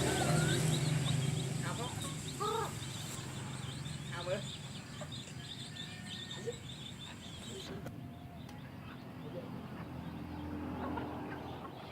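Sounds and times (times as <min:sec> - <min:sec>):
high-pitched chirping: 0:00.0 - 0:07.8
chickens clucking: 0:00.0 - 0:11.9.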